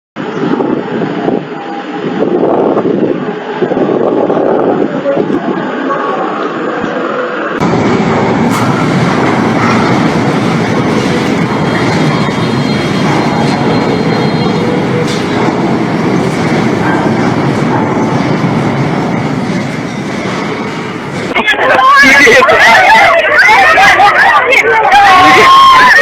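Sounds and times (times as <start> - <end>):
earthquake rumbling: 7.6 - 21.6.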